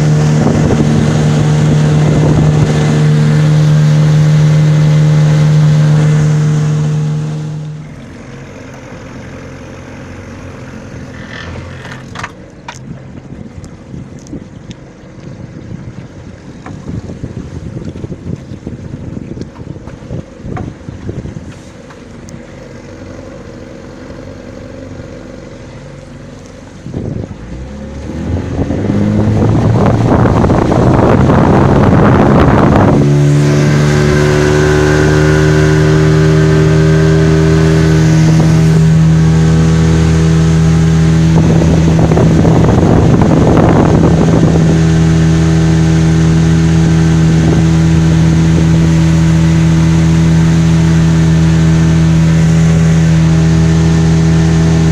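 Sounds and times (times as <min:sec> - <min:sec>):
outboard motor revving: 0:00.0 - 0:54.9
rush of wind and water: 0:00.0 - 0:54.9.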